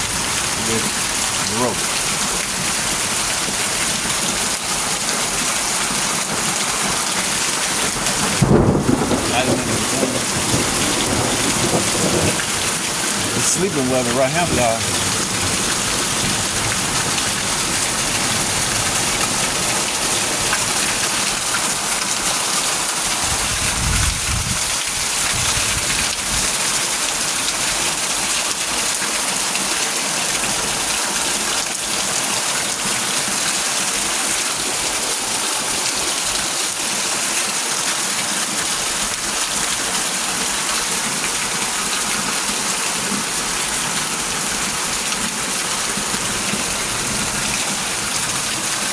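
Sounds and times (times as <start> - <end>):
steady rain falling: 0.0 - 48.9.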